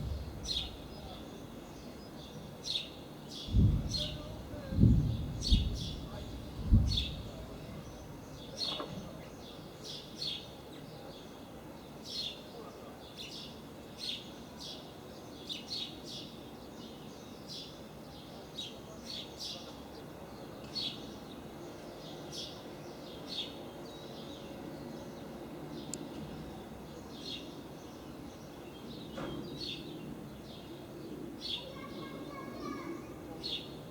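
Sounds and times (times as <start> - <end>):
small bird chirping: 0.0 - 10.4
faint outdoor background noise: 0.0 - 33.9.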